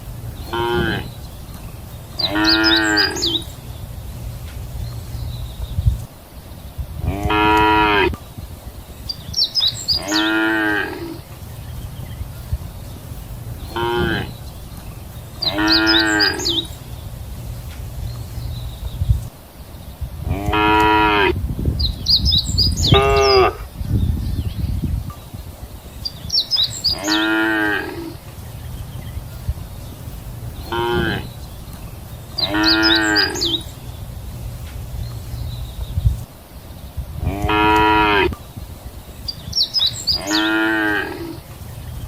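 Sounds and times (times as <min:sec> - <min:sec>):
steady low rumble: 0:00.0 - 0:10.0, 0:11.1 - 0:27.0, 0:28.0 - 0:40.2
cattle mooing: 0:00.5 - 0:01.1, 0:02.2 - 0:03.4, 0:10.0 - 0:11.2, 0:13.7 - 0:14.3, 0:15.4 - 0:16.7, 0:20.3 - 0:21.4, 0:22.9 - 0:23.6, 0:26.9 - 0:28.2, 0:30.7 - 0:31.2, 0:32.4 - 0:33.6, 0:37.2 - 0:38.4, 0:40.2 - 0:41.4.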